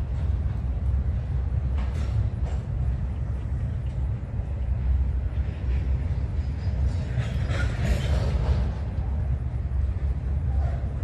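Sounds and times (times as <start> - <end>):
freight train rumbling past: 0.0 - 11.0
train wheels rattling and squealing: 1.6 - 3.1, 5.3 - 11.0.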